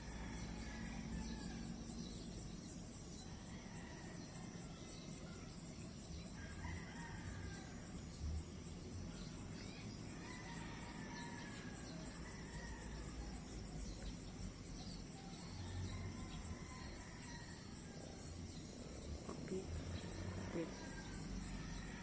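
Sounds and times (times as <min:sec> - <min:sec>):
insect chorus: 0:00.0 - 0:22.0
rooster crowing: 0:06.4 - 0:08.0, 0:20.0 - 0:22.0.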